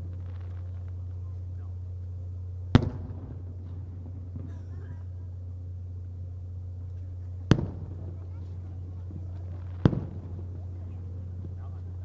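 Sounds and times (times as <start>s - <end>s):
firework burst echo: 0.0s - 1.7s, 2.6s - 5.2s, 7.4s - 12.0s
faint crowd voices: 0.0s - 12.0s
steady low hum: 0.0s - 12.0s.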